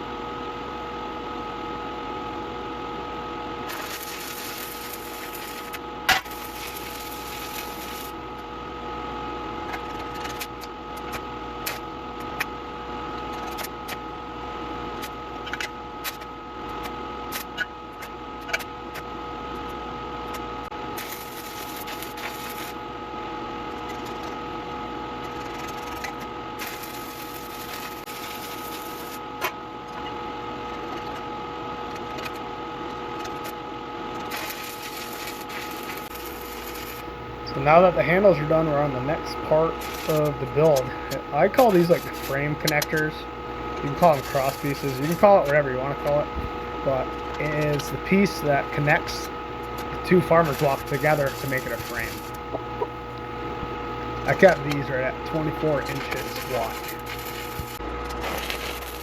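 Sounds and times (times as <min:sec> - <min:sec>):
steady hum: 0:00.0 - 0:15.3, 0:34.3 - 0:59.0
hissing crackle: 0:03.7 - 0:08.2, 0:34.3 - 0:59.0.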